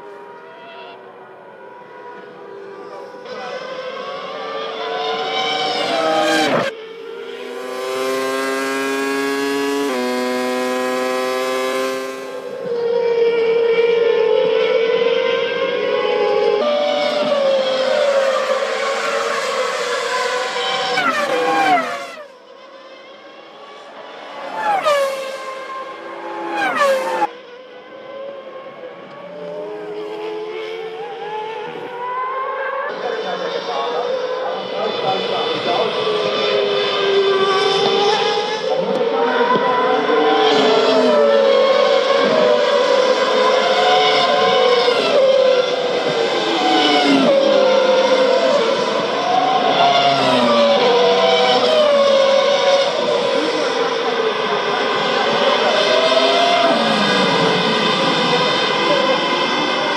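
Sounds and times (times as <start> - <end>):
racing car engine passing: 0.4 - 59.9
wavering engine note: 15.9 - 22.4.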